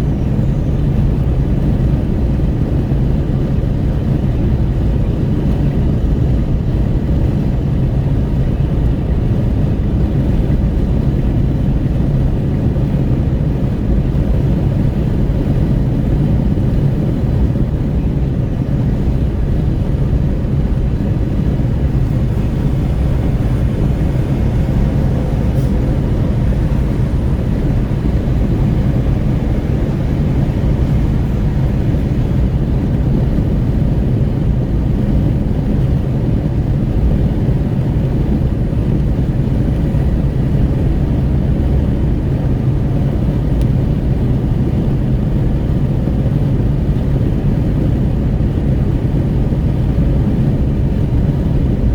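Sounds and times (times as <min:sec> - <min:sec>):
wind rushing at car window: 0:00.0 - 0:51.9
tyre and road noise: 0:07.7 - 0:43.9.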